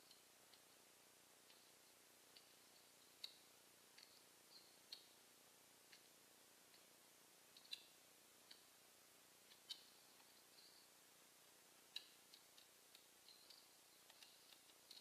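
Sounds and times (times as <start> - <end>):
birds pecking clicks and taps: 11.9 - 15.0
bird chirps: 13.2 - 15.0.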